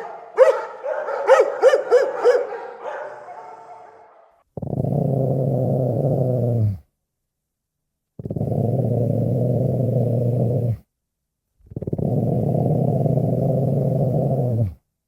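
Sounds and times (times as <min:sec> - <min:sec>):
low animal growl: 0:04.6 - 0:06.9, 0:08.2 - 0:10.8, 0:11.6 - 0:14.8.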